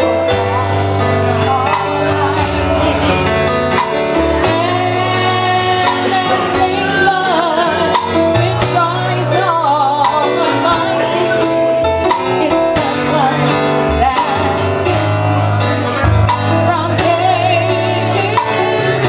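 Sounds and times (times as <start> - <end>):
gospel duet singing: 0.0 - 19.0
instrumental accompaniment: 0.0 - 19.0.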